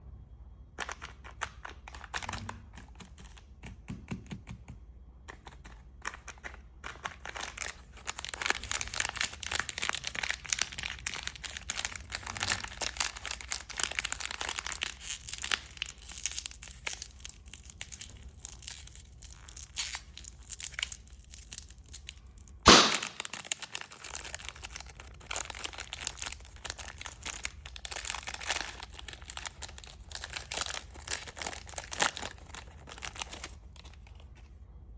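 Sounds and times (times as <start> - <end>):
plastic wrappers crinkling: 6.2 - 34.5
sharp loud snap: 22.7 - 23.3.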